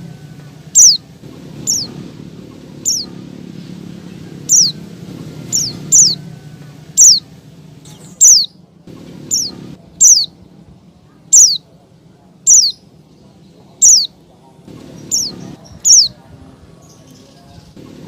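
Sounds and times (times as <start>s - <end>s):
bird calling high short notes: 0.7s - 2.1s, 2.8s - 3.8s, 4.4s - 6.2s, 7.0s - 7.3s, 8.1s - 8.6s, 9.3s - 10.4s, 11.3s - 11.6s, 12.5s - 12.8s, 13.8s - 14.2s.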